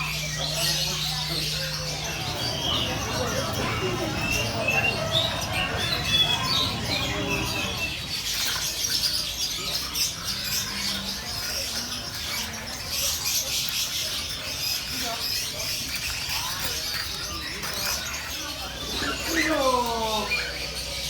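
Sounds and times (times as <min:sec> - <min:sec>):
low background hum: 0:00.0 - 0:08.6
songbirds chirping and whistling: 0:00.0 - 0:21.0.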